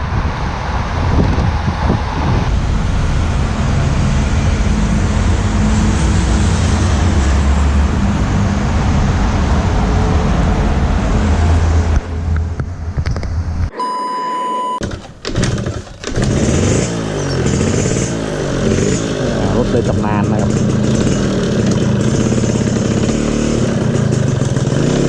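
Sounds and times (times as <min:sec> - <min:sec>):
wind rushing over microphone: 0:00.0 - 0:13.7
low engine drone: 0:00.0 - 0:25.0
vehicle road noise: 0:00.0 - 0:25.0.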